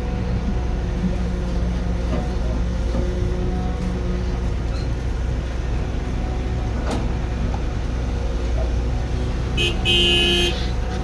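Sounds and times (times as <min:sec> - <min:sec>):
heavy machine engine droning: 0:00.0 - 0:11.0.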